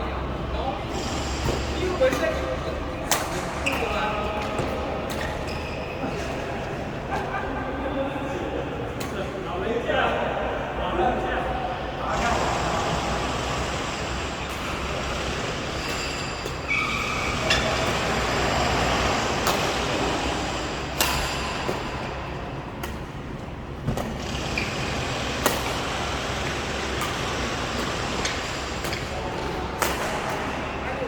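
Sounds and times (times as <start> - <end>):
road traffic noise: 11.8 - 30.8.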